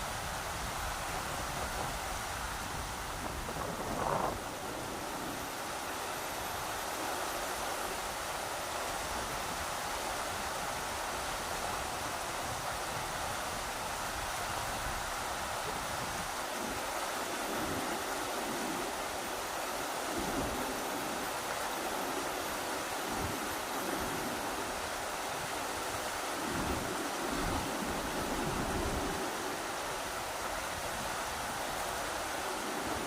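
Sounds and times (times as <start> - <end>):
wind buffeting microphone: 0.0 - 5.8, 23.0 - 31.8
rushing river water: 0.0 - 33.0.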